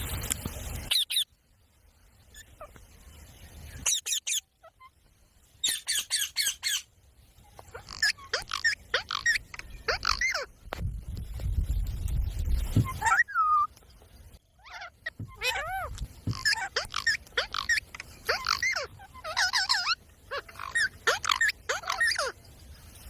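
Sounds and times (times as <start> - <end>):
parrot chirps and whistles: 3.8 - 4.9, 7.7 - 10.5, 12.8 - 13.7, 14.6 - 22.4
parrot screeching: 7.7 - 10.5, 14.6 - 22.4.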